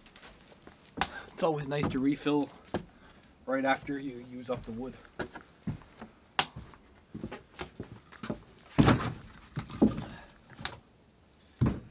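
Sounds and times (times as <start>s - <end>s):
light wooden knocks of logs: 0.0s - 2.1s, 4.6s - 10.8s
heavy log thuds: 0.3s - 2.9s, 8.8s - 10.3s, 11.6s - 11.9s.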